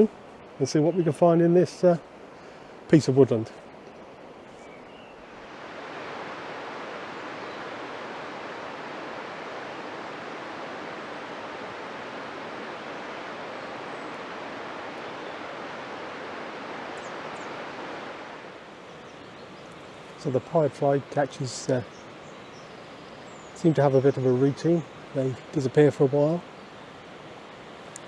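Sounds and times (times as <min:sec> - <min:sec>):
river water rushing: 0:05.1 - 0:19.1.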